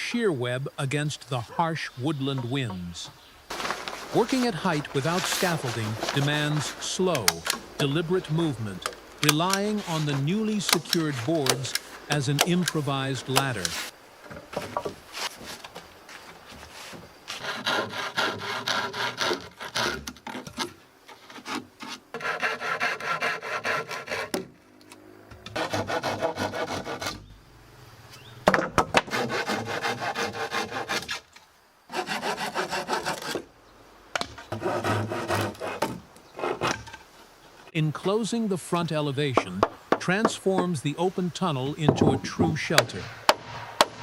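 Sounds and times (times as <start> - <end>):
hand saw cutting wood: 3.5 - 7.6, 8.4 - 13.9, 17.3 - 24.5, 25.5 - 27.2, 28.9 - 31.2, 31.9 - 33.4, 34.5 - 36.9.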